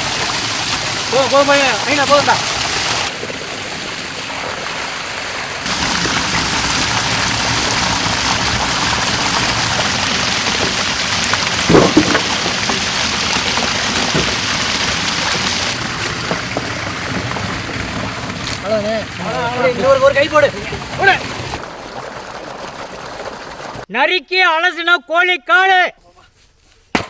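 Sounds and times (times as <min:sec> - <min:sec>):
ginger sizzling in oil: 0:00.0 - 0:21.6.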